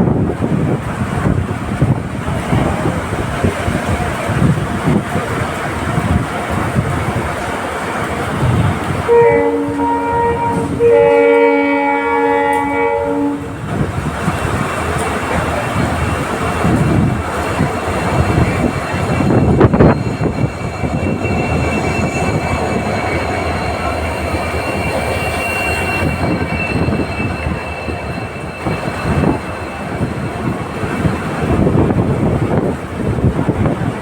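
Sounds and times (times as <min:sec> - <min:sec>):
train wheels rumbling on rails: 0:00.0 - 0:34.0
high-pitched wheel squeal: 0:16.6 - 0:31.9.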